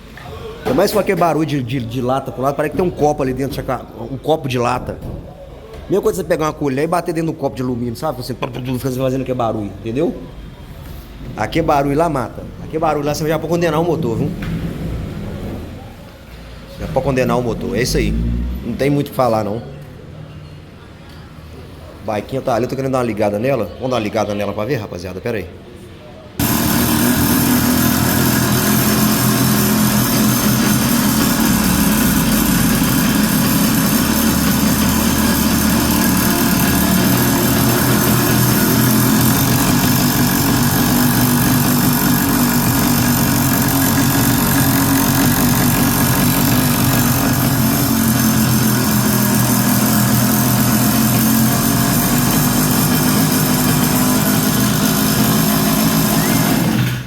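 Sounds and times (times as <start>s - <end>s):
motorized bicycle engine running: 26.4s - 57.0s.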